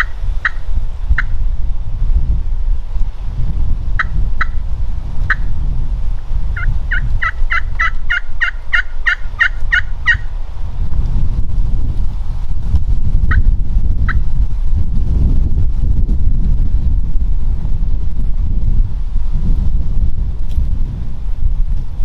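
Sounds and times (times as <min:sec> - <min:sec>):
steady low rumble: 0:00.0 - 0:22.0
turkey yelps: 0:06.6 - 0:10.2.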